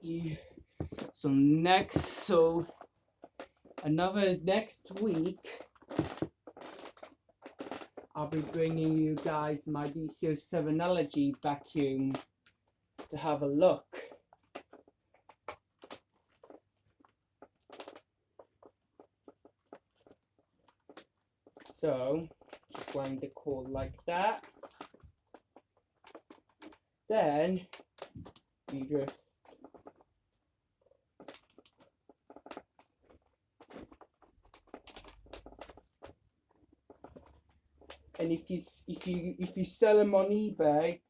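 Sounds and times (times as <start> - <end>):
cable clicking against plastic: 4.5 - 10.0, 14.3 - 30.4.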